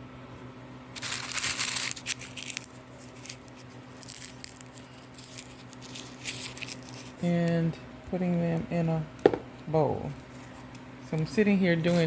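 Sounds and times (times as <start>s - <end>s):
steady low hum: 0.0s - 12.0s
papery husks crackling and tearing: 1.0s - 7.2s.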